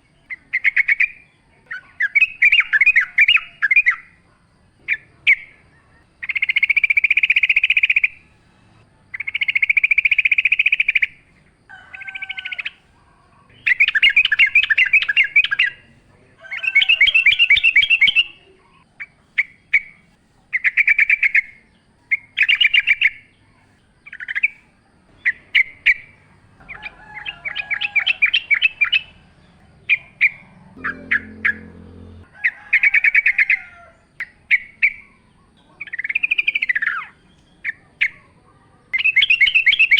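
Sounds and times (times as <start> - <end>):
bird singing trilled phrases: 13.5 - 16.0, 16.6 - 20.0, 34.2 - 38.2, 39.0 - 39.9.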